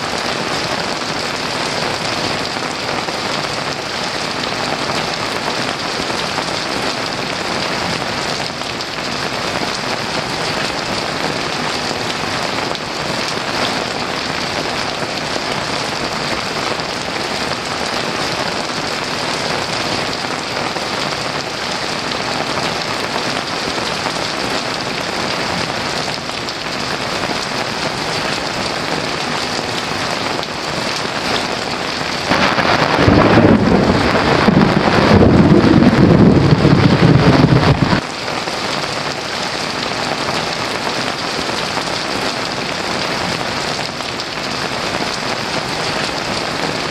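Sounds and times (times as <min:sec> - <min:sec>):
heavy rain falling: 0:00.0 - 0:46.9
thunder rumble: 0:32.3 - 0:38.0.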